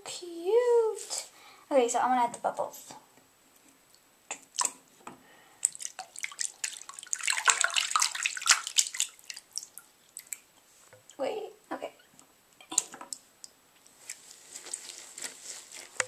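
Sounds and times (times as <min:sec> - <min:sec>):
water dripping: 0:03.9 - 0:04.8, 0:05.6 - 0:11.3, 0:12.6 - 0:13.9
water sloshing and splashing: 0:05.6 - 0:10.5.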